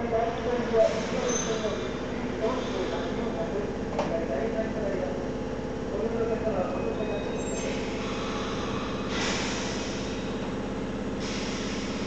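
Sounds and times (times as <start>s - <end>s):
electric railcar hum and rumble: 0.0s - 12.0s
air hiss: 9.1s - 10.2s, 11.2s - 12.0s.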